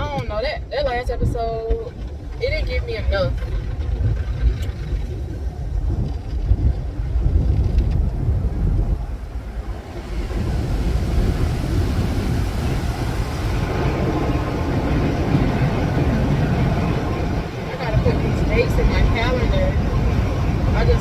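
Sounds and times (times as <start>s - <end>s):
car engine and road rumble: 0.0s - 21.0s
rushing noise: 7.0s - 21.0s.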